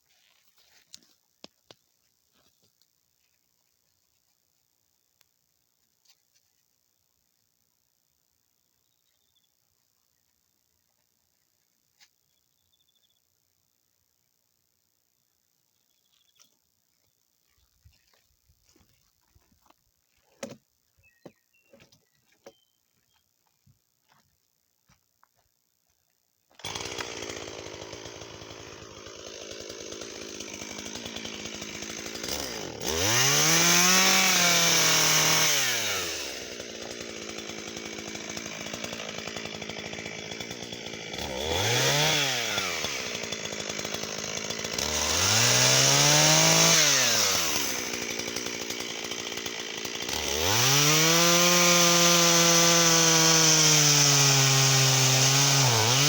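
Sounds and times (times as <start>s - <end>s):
chainsaw cutting wood: 20.2s - 20.7s, 26.5s - 56.0s
chainsaw idling and revving: 26.6s - 56.0s.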